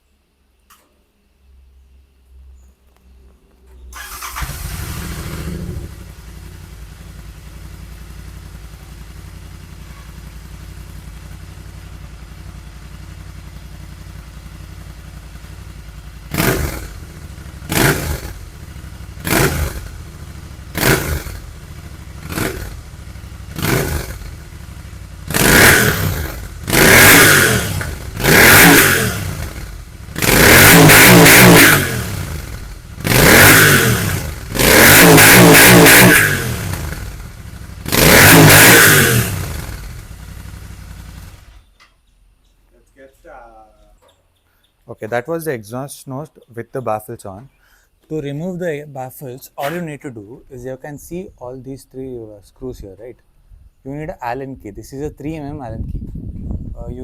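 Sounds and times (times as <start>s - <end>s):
motorcycle engine idling and revving: 2.6s - 42.7s.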